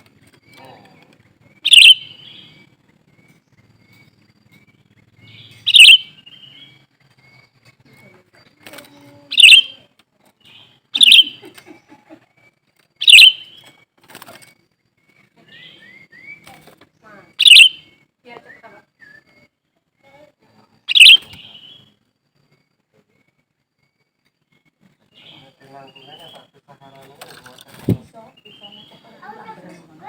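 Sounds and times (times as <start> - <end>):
loud sharp bird chirps: 1.5 - 7.5, 9.3 - 11.5, 13.0 - 13.8, 17.3 - 19.5, 20.8 - 22.0
quick repeated bird notes: 1.6 - 2.7, 5.3 - 6.6, 9.3 - 9.8, 10.9 - 11.5, 13.0 - 13.8, 17.4 - 17.9, 20.9 - 21.8.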